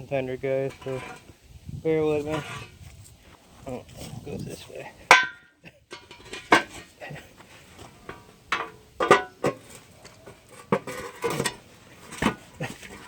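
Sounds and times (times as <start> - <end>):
sheet metal clanking and knocking: 8.1 - 9.7.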